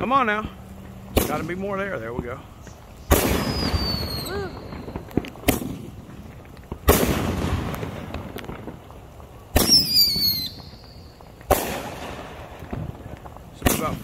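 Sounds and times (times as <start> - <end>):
fireworks bangs: 0.0 - 14.0
fireworks rumble: 0.0 - 14.0
firework whistle falling in pitch: 3.3 - 5.0, 9.6 - 11.0.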